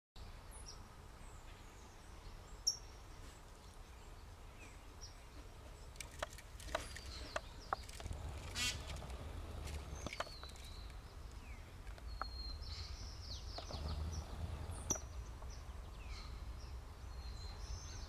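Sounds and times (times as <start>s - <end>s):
small birds chirping: 0.2s - 18.0s
low outdoor rumble: 4.0s - 18.0s
sharp clicks: 5.9s - 12.4s.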